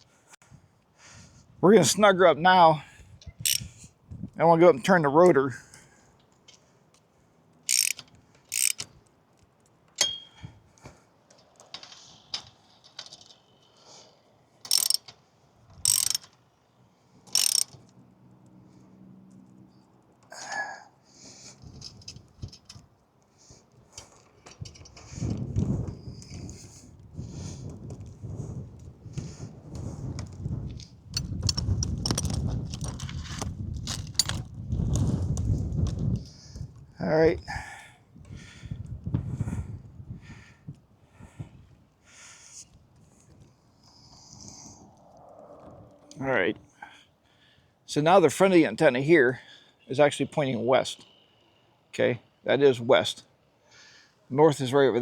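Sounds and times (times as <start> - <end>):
ratchet wrench ratcheting: 3.4 - 3.7, 7.7 - 8.9, 14.7 - 15.1, 15.8 - 16.3, 17.3 - 17.8, 31.2 - 33.0
metallic clink: 3.5 - 3.7, 7.7 - 8.8, 10.0 - 10.4, 14.7 - 15.1, 15.9 - 16.3, 17.4 - 17.8
metal clinking and rattling: 7.7 - 8.9, 14.7 - 15.1, 15.9 - 16.3, 17.3 - 17.8, 31.4 - 34.5.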